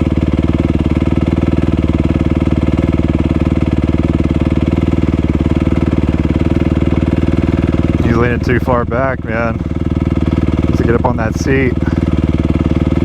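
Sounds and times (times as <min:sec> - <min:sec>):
dirt bike engine idling: 0:00.0 - 0:13.0.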